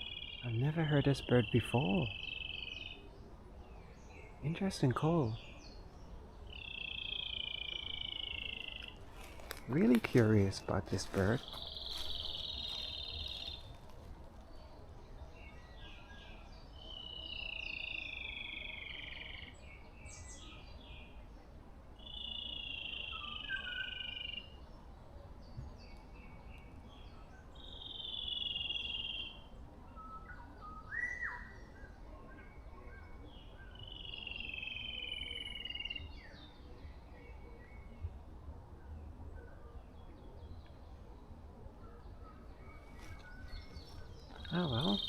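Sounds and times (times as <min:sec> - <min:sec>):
birds chirping faintly: 0:00.0 - 0:45.0
bird drawn-out call: 0:06.5 - 0:09.4, 0:44.3 - 0:45.0.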